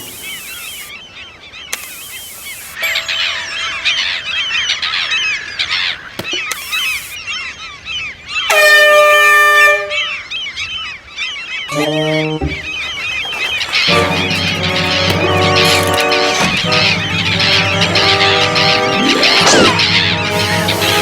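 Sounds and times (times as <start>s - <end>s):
gulls squawking: 0.0s - 8.5s, 10.0s - 21.0s
loud horn blast: 12.4s - 21.0s.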